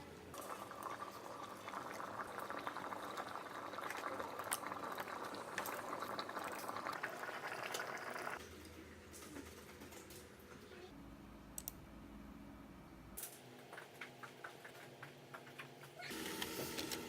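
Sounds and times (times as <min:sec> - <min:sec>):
kettle water boiling: 0:00.3 - 0:08.4.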